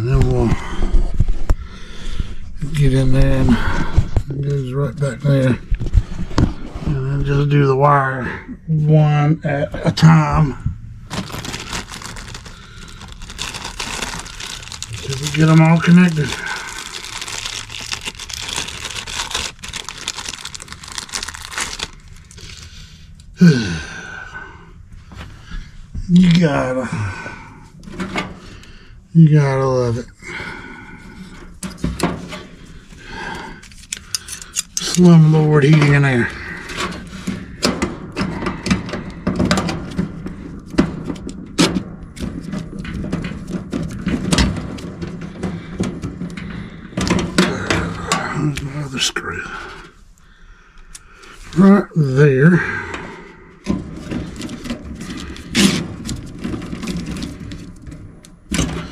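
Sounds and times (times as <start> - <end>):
crinkling handling noise: 11.0 - 23.0, 53.7 - 58.0.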